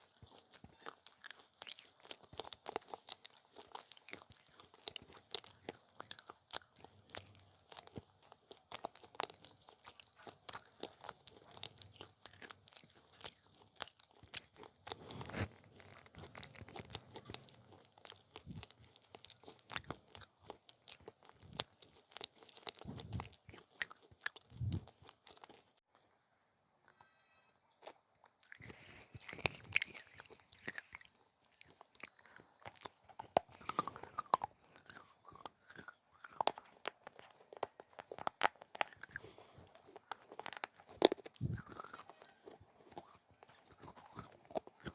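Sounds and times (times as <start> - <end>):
crunchy chewing of baked clay: 0.0 - 44.9.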